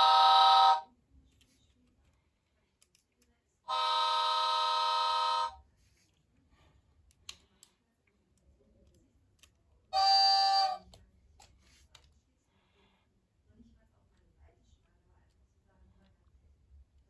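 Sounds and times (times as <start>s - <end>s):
toy train electronic horn toot: 0.0s - 0.9s, 3.7s - 5.6s, 10.0s - 10.9s.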